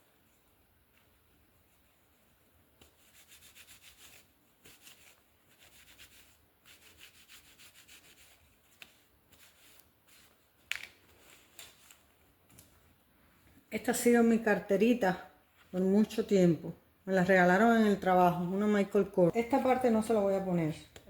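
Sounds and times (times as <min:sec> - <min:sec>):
rubbing on leather wallet: 0:00.3 - 0:12.1.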